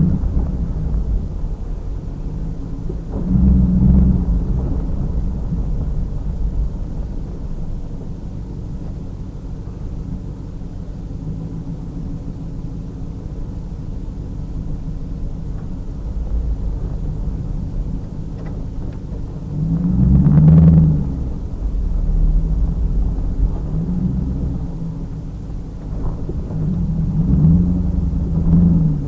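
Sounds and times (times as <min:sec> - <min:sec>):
car engine rumbling: 0:00.0 - 0:29.0.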